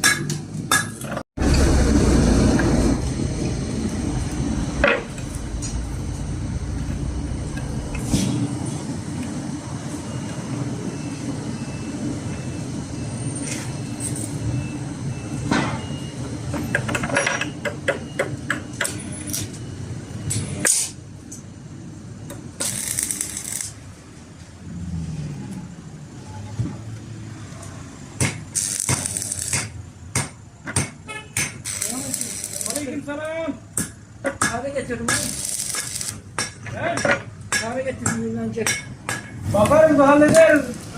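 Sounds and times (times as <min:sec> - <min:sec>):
metal strikes and clanks: 0:00.0 - 0:01.8, 0:33.8 - 0:39.8
machine droning: 0:01.4 - 0:14.0, 0:22.5 - 0:24.0, 0:28.5 - 0:30.0, 0:31.6 - 0:33.0, 0:35.0 - 0:36.3.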